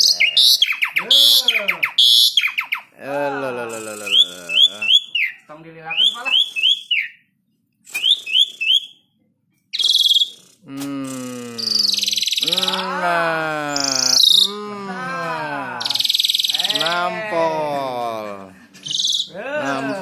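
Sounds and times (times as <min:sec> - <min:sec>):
starling singing: 0:00.0 - 0:07.2, 0:09.8 - 0:10.5, 0:11.2 - 0:14.6, 0:15.6 - 0:18.2, 0:18.8 - 0:20.0.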